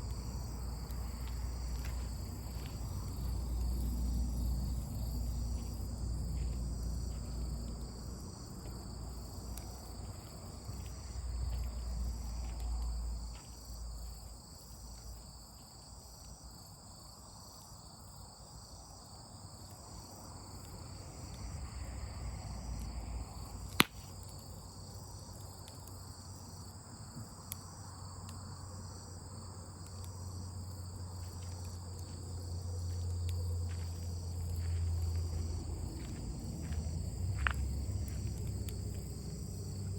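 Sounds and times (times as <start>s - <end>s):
crickets chirping: 0.0s - 39.9s
low rumble: 33.5s - 39.9s.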